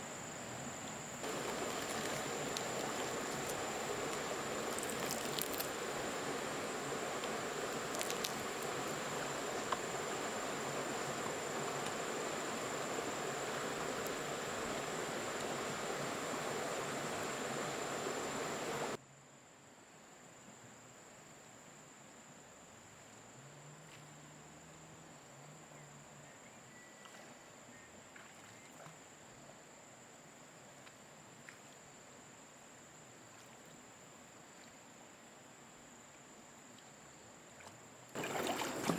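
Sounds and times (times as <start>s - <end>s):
high insect trill: 0.0s - 19.0s, 38.2s - 38.9s
forest background: 0.0s - 38.9s.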